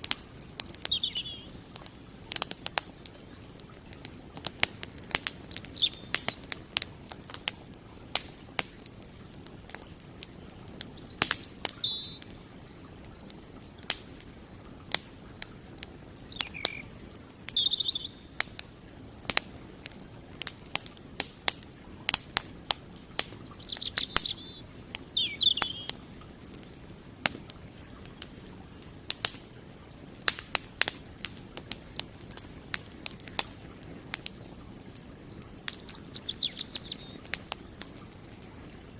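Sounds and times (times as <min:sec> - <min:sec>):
small birds chirping: 0:00.0 - 0:14.0, 0:15.6 - 0:19.0, 0:22.7 - 0:26.7, 0:33.0 - 0:38.9
campfire crackling and popping: 0:00.0 - 0:38.9
flowing creek: 0:00.0 - 0:38.9.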